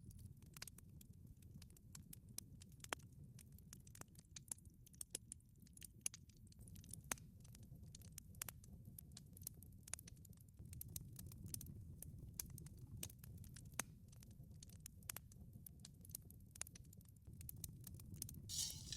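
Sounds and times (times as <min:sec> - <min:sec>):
wood fire crackling: 0:18.5 - 0:18.9.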